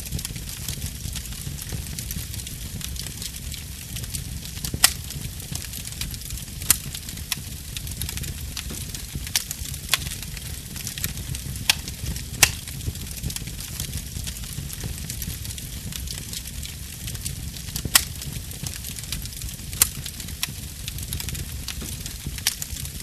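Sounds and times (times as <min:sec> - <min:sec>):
fire crackling in fireplace: 0:00.0 - 0:23.0
logs popping: 0:06.3 - 0:12.9, 0:17.8 - 0:19.0, 0:19.7 - 0:23.0.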